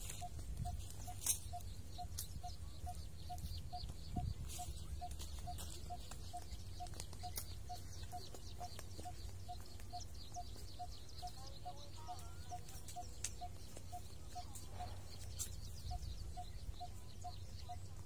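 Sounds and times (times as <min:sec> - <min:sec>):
high bird chirps: 0:00.0 - 0:18.0.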